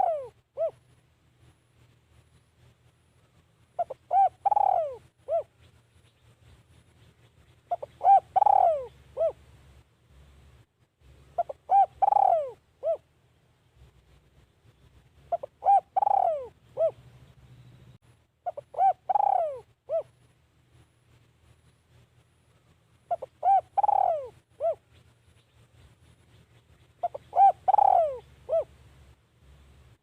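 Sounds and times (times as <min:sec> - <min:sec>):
dove cooing: 0:00.0 - 0:00.8, 0:03.8 - 0:05.7, 0:07.7 - 0:09.4, 0:11.4 - 0:13.1, 0:15.3 - 0:17.0, 0:18.4 - 0:20.2, 0:23.1 - 0:25.0, 0:27.0 - 0:28.8.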